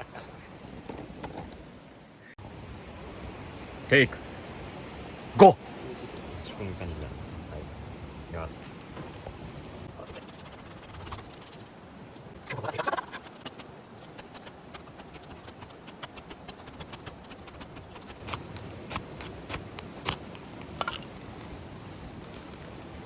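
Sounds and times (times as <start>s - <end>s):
kindling fire crackling: 3.0s - 23.0s
rustle or scrape: 8.5s - 23.0s.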